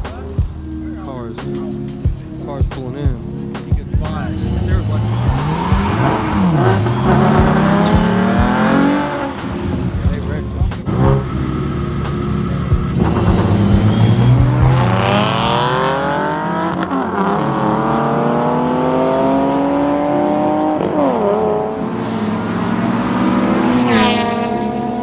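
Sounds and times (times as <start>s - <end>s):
car engine accelerating hard: 3.5s - 25.0s
higher-pitched engine surging: 3.8s - 25.0s.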